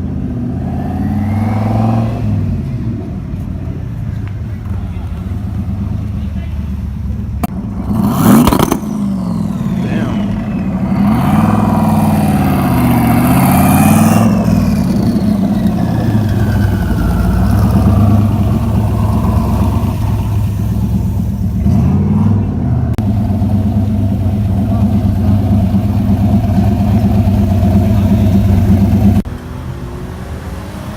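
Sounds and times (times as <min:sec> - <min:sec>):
engine revving: 0:00.0 - 0:02.8, 0:07.4 - 0:30.9
low engine drone: 0:06.2 - 0:29.4.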